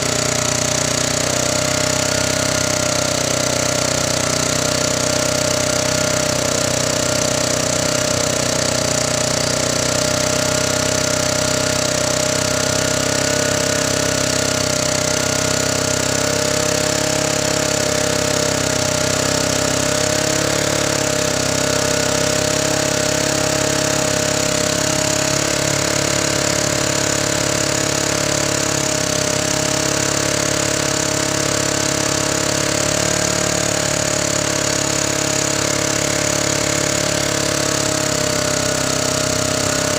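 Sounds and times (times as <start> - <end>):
generator engine running: 0.0 - 39.9.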